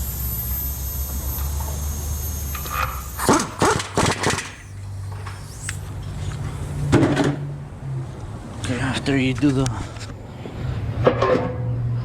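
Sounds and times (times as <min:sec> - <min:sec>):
thin high whine: 0:00.0 - 0:07.6
low hum: 0:00.0 - 0:08.6.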